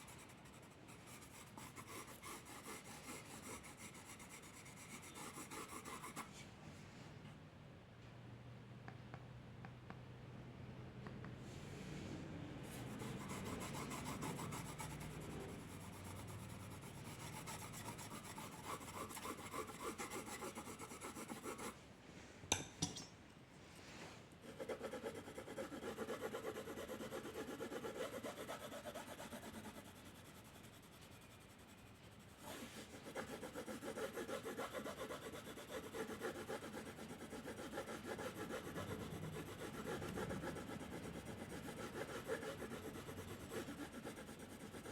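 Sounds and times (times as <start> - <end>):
pencil strokes rubbing on paper: 12.7 - 21.8, 24.4 - 44.9.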